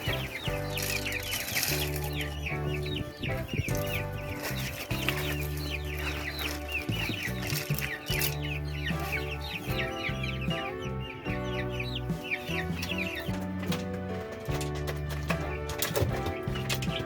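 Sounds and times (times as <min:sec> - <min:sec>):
background music low notes: 0:00.0 - 0:17.0
chickens chirping: 0:00.0 - 0:17.0.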